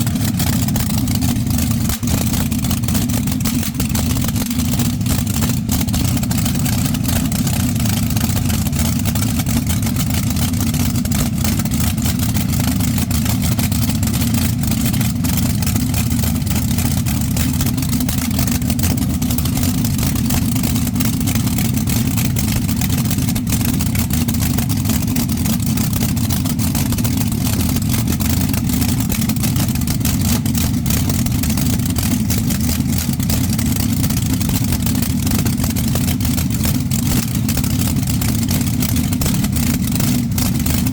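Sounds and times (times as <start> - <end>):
engines running at low speed: 0.0 - 40.9.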